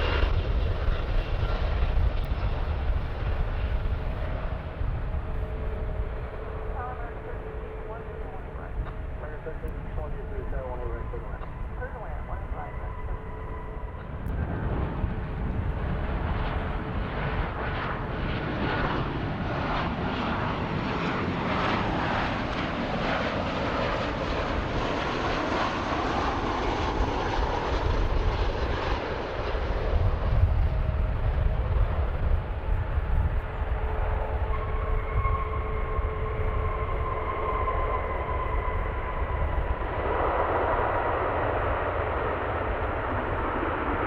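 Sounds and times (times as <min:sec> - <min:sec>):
airplane engines roaring: 0:00.0 - 0:44.0
deep rumble: 0:00.0 - 0:44.0.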